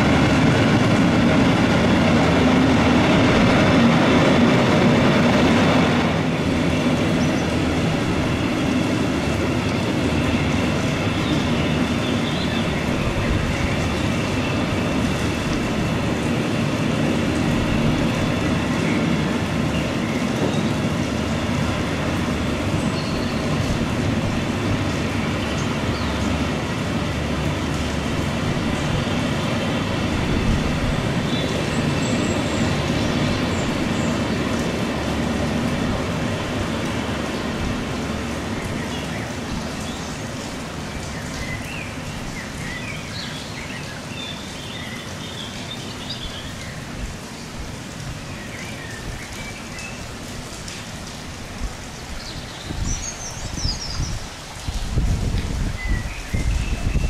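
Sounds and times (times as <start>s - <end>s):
freight train wheels rumbling: 0.0s - 39.9s
rain falling: 0.0s - 57.0s
birds chirping: 0.1s - 35.5s, 37.2s - 47.5s, 51.8s - 54.9s, 55.6s - 57.0s.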